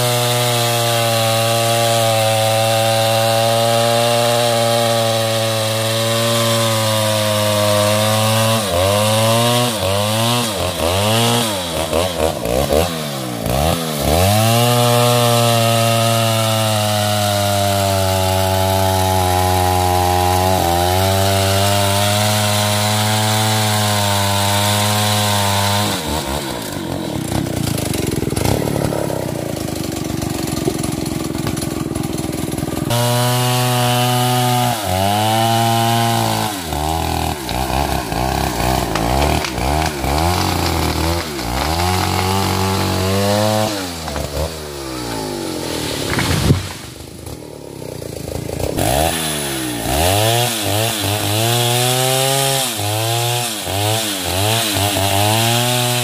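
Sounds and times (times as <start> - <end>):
chainsaw cutting at high revs: 0.0 - 56.0.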